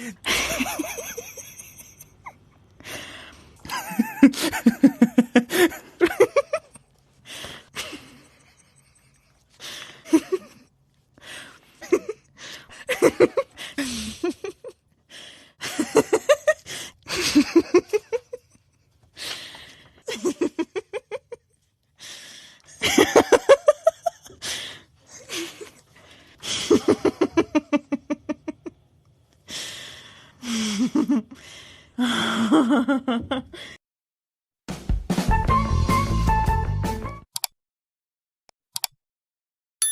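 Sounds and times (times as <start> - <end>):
person laughing: 0.0 - 2.4, 3.6 - 6.8, 7.7 - 10.7, 11.7 - 14.8, 20.1 - 21.4, 22.8 - 24.4, 26.4 - 28.6.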